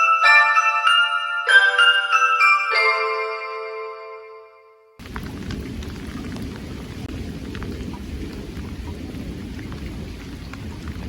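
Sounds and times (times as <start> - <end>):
chiming music: 0.0 - 5.0
steady rain falling: 5.0 - 11.0.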